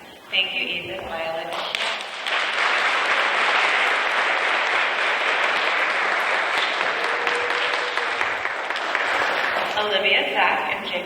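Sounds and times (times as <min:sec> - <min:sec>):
children applauding: 0:01.5 - 0:10.3.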